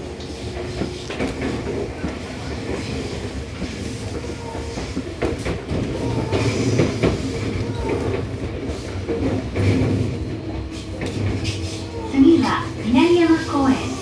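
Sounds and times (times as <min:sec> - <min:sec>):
train interior rumble: 0:00.0 - 0:14.0.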